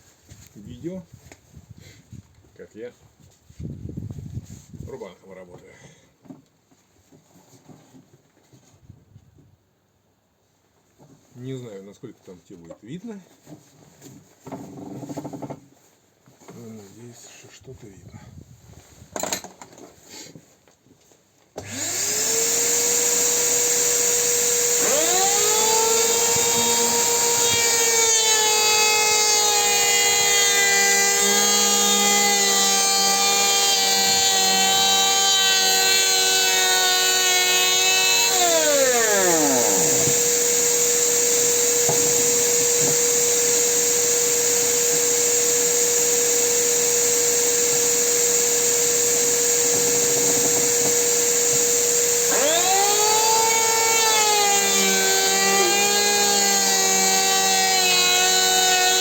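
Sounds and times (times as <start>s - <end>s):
electric hand planer running: 21.6s - 59.0s
machine high whine: 38.2s - 56.3s.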